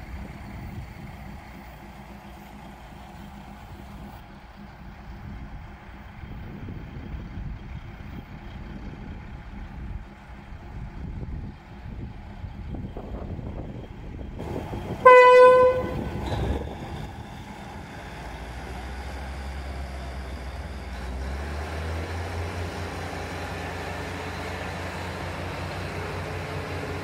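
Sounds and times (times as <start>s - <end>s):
diesel engine rumbling: 0.0s - 27.0s
train horn blast: 15.0s - 16.6s.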